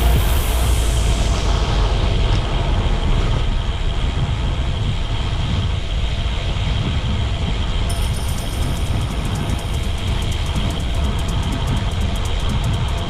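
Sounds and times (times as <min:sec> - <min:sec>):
wind buffeting microphone: 0:00.0 - 0:13.0
rapid high-pitched ticking: 0:07.9 - 0:13.0.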